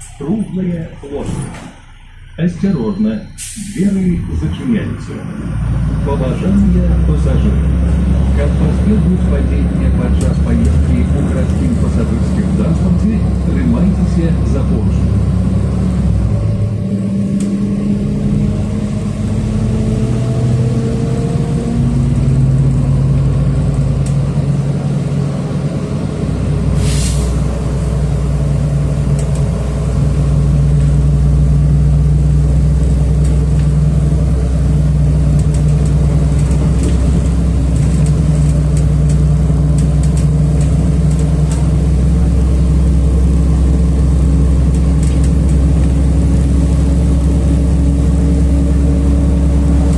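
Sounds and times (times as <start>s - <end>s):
bus engine accelerating: 0.0s - 49.9s
compressed air hiss: 3.4s - 4.0s, 26.8s - 27.4s.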